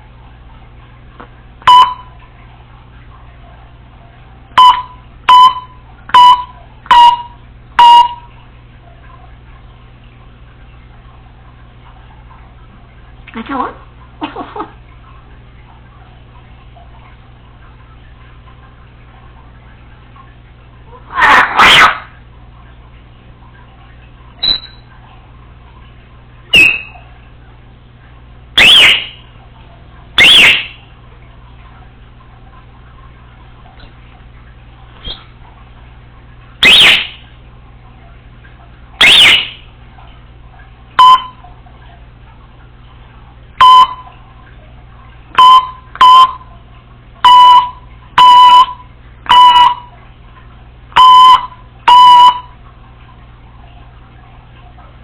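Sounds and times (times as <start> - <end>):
parrot beep-like calls: 4.6 - 8.3, 21.1 - 22.1, 24.4 - 24.9, 26.5 - 27.0, 28.6 - 29.2, 30.2 - 30.8, 36.6 - 37.2, 39.0 - 39.6, 47.2 - 49.9, 51.0 - 52.5
parrot whistled calls: 21.2 - 22.0, 24.4 - 24.8, 26.5 - 27.0, 28.6 - 29.2, 30.2 - 30.8, 35.0 - 35.3, 36.6 - 37.2, 39.0 - 39.6
parrot chirping: 24.4 - 24.8, 26.5 - 27.0, 28.6 - 29.2, 30.2 - 30.8, 36.6 - 37.2, 39.0 - 39.6.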